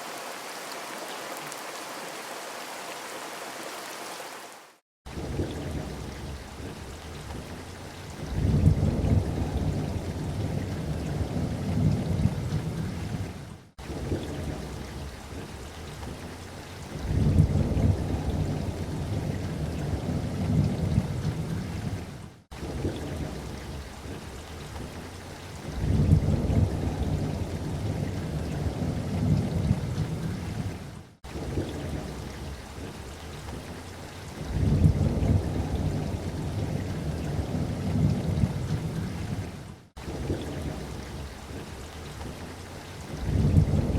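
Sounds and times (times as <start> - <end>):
steady rain hiss: 0.0 - 43.9
low rolls of thunder: 5.1 - 7.5, 8.2 - 15.5, 16.9 - 24.2, 25.6 - 33.0, 34.4 - 42.3, 43.1 - 43.9.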